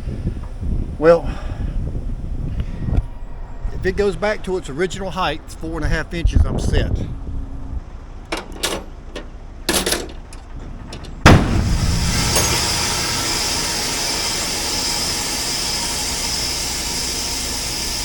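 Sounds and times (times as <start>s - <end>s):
compressed air hissing: 0.0s - 4.1s, 11.2s - 18.0s
airbag bursting with loud bang: 11.2s - 15.4s.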